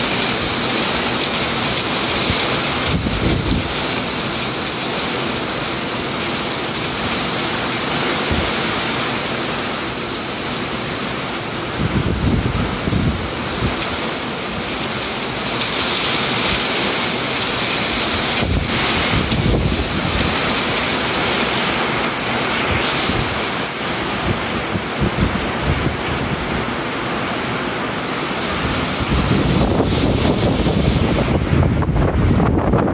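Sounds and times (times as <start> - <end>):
heavy rain: 0.0 - 32.9
wind buffeting microphone: 2.2 - 3.9, 11.7 - 13.9, 18.0 - 26.7, 28.5 - 32.9.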